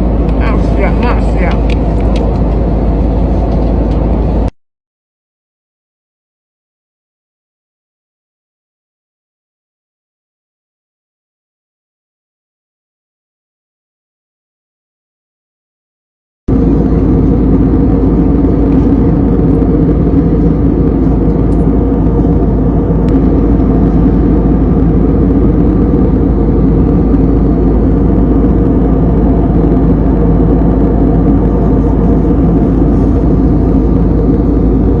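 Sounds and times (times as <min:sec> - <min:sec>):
airliner cabin engine drone: 0:00.0 - 0:04.6, 0:16.5 - 0:35.0.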